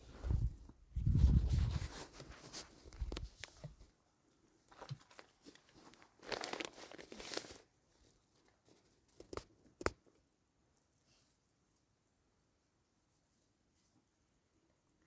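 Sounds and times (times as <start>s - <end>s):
rustling crinkling handling noise: 4.6s - 9.9s.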